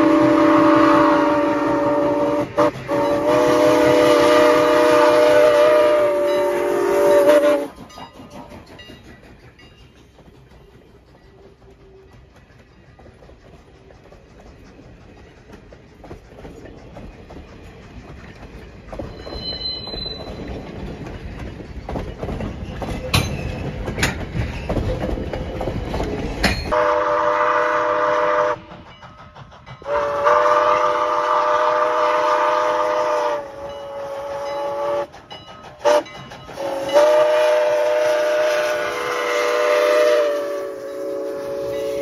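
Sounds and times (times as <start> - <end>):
steam whistle blasts: 0.0 - 7.8, 26.7 - 28.7, 29.8 - 35.1, 35.8 - 42.0
train cars rolling on track: 0.0 - 42.0.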